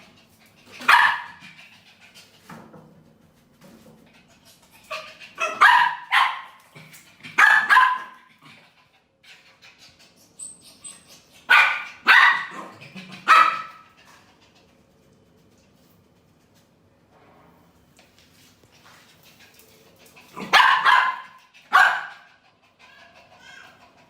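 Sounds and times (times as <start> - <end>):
dog barking: 0.8 - 1.4, 5.4 - 6.6, 7.4 - 8.3, 11.5 - 13.8, 20.4 - 22.3.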